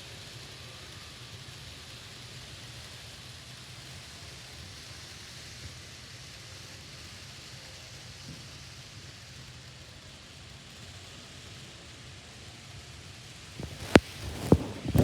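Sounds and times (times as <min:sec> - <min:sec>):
model trains running on track: 0:00.0 - 0:13.6
even hiss: 0:13.6 - 0:15.0.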